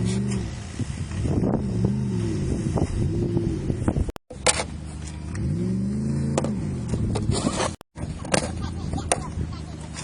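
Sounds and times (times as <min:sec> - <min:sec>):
engine revving: 0:00.0 - 0:07.8.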